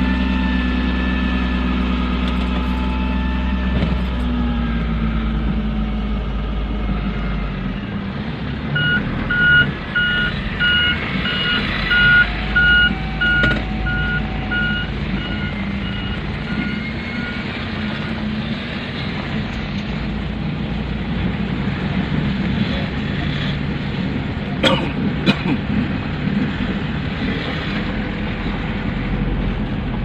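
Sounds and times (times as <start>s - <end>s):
truck engine running: 0.0s - 30.0s
truck reversing alarm beeping: 8.8s - 18.1s.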